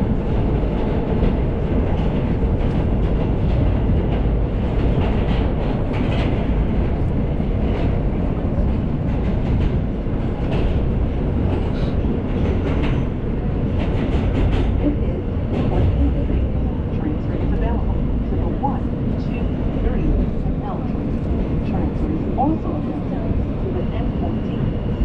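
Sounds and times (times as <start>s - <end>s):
subway train wheels rumbling on track: 0.0s - 25.0s.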